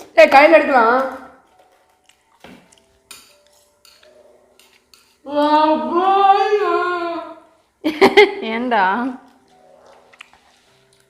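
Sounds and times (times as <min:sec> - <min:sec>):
chopsticks clicking on plate: 0:01.0 - 0:05.2.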